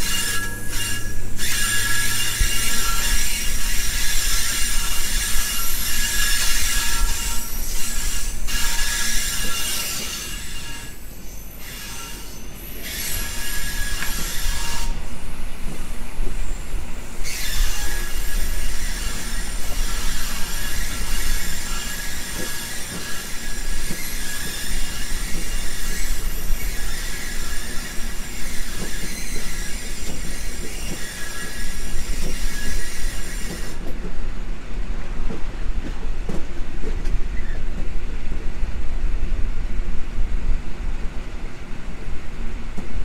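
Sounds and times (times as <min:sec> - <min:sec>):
high-pitched wheel squeal: 0:00.0 - 0:15.3, 0:16.4 - 0:33.8
train wheels rolling on rails: 0:00.0 - 0:43.0.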